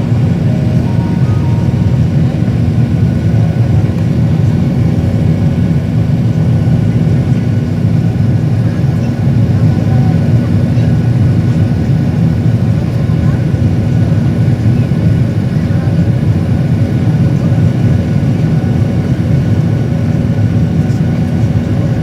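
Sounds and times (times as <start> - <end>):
faint steady tones: 0.0 - 4.6
aircraft engines roaring: 0.0 - 22.0.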